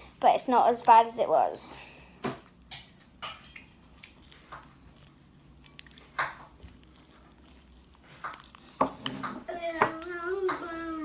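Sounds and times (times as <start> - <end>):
sticky slime squelches and snaps: 3.9 - 9.1.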